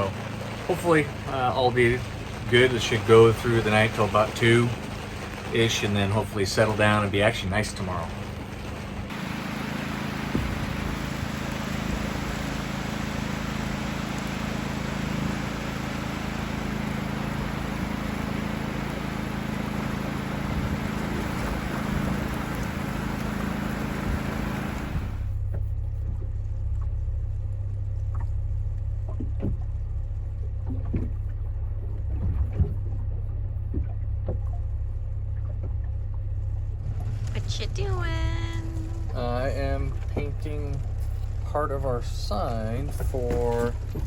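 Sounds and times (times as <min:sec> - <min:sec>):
storm wind and rain: 0:00.0 - 0:18.4, 0:19.1 - 0:25.3
steady low hum: 0:00.0 - 0:44.0.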